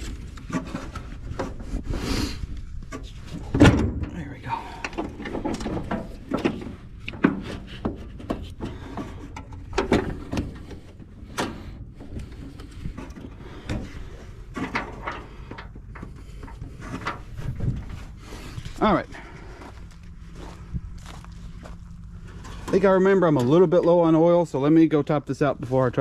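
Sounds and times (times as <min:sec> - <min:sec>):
car battery knocking and scraping: 0:00.0 - 0:01.9, 0:02.7 - 0:19.7.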